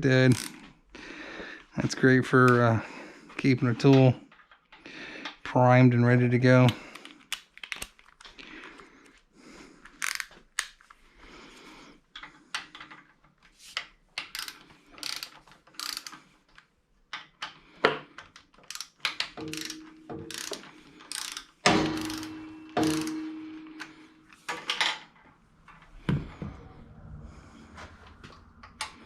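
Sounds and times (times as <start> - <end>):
ratchet wrench clicking: 0.3 - 0.6, 10.0 - 10.3, 14.2 - 16.2, 18.6 - 23.9
metal tools clattering: 19.4 - 25.2.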